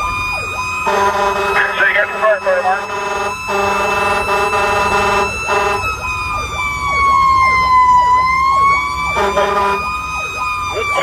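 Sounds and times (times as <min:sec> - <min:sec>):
fast siren yelp: 0:00.0 - 0:11.0
siren wail: 0:00.0 - 0:11.0
fire engine air horn: 0:00.7 - 0:06.7, 0:08.8 - 0:11.0.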